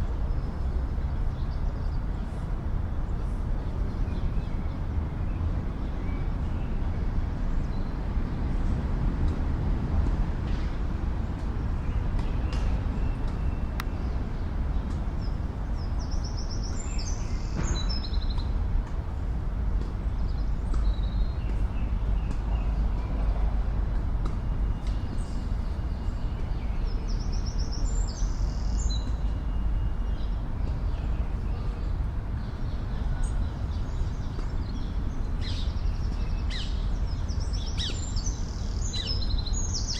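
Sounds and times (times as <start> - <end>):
city traffic rumble: 0.0 - 39.9
songbird singing: 11.3 - 18.6, 20.1 - 39.9.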